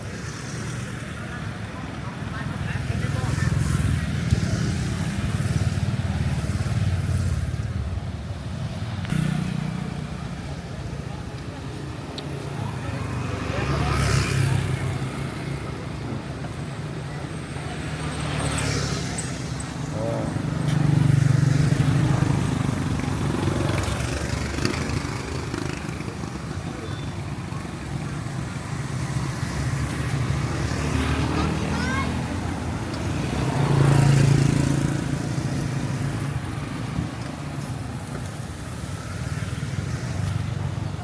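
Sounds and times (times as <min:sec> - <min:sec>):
street noise: 0:00.0 - 0:41.0
motorbike engine passing: 0:09.1 - 0:10.5.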